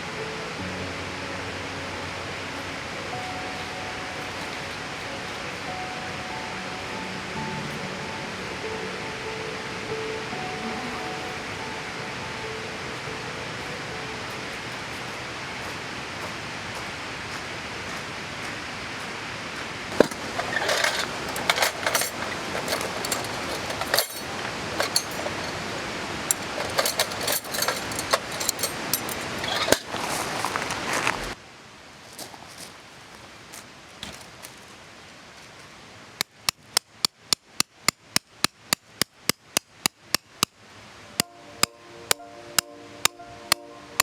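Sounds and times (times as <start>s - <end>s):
steady outdoor hiss: 0.0s - 44.0s
metal cookware clinking: 19.9s - 30.0s.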